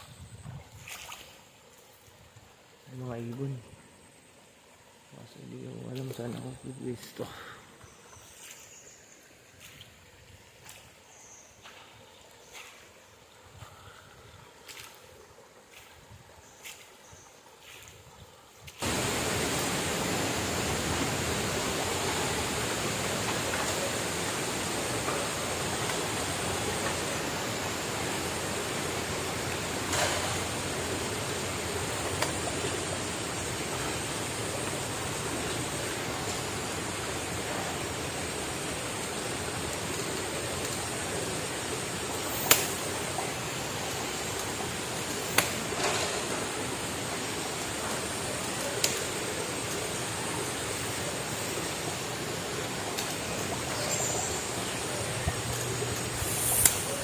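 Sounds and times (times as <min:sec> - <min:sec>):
river water rushing: 0:18.8 - 0:57.0
sharp clicks: 0:42.3 - 0:42.9.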